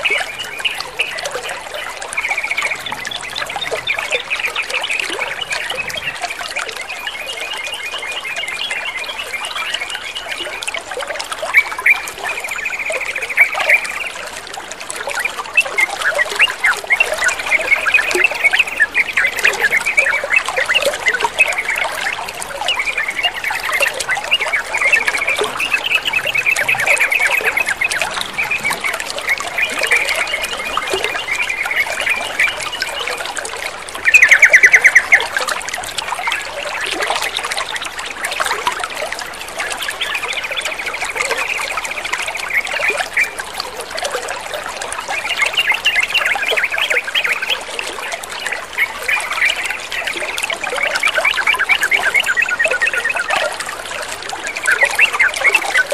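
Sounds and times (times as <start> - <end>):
water trickling: 0.0 - 55.9
bird chattering and calling: 16.4 - 32.9.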